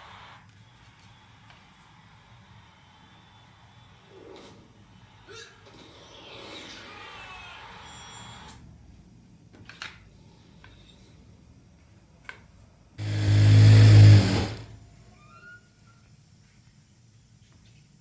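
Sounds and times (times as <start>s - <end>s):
electric sewing machine running: 13.0s - 14.8s.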